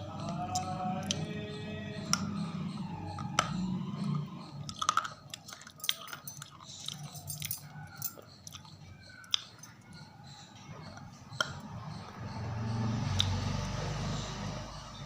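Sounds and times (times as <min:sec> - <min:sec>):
crunchy food chewing: 0:08.1 - 0:09.7.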